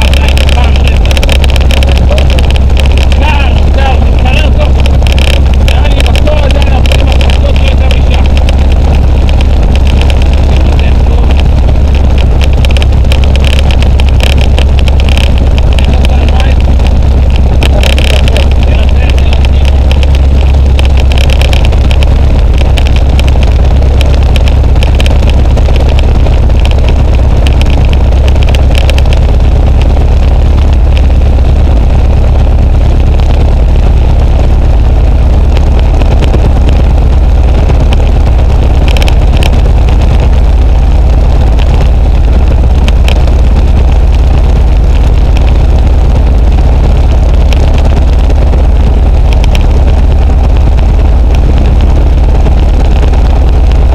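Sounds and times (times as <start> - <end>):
light aircraft engine drone: 0.0 - 53.9.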